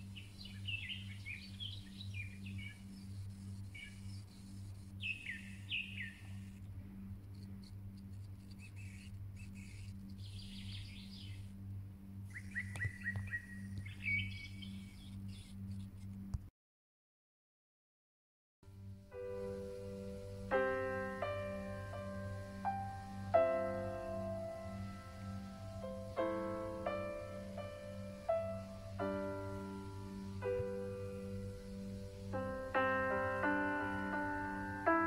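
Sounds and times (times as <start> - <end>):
small birds chirping: 0.0 - 16.3
steady low hum: 0.0 - 16.4, 18.7 - 35.0.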